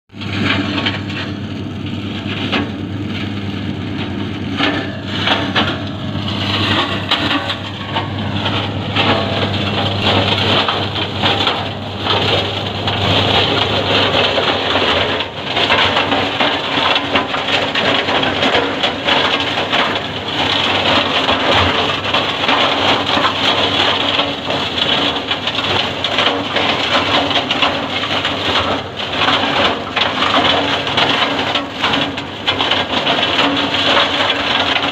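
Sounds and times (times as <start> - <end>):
tractor engine drone: 0.1 - 34.9
branch shredder crunching wood: 2.1 - 34.9.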